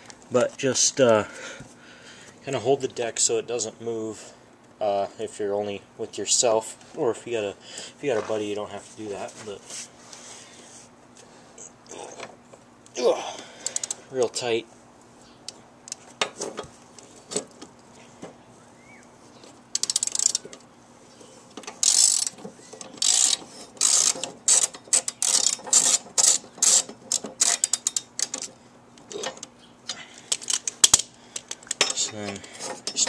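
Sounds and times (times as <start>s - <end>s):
ratchet wrench clicking: 19.7s - 20.4s, 21.7s - 22.4s, 23.0s - 28.5s.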